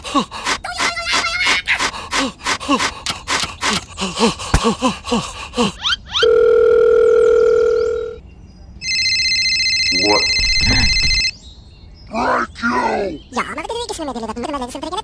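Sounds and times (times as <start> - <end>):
squeaky cartoon chattering: 0.6 - 1.9.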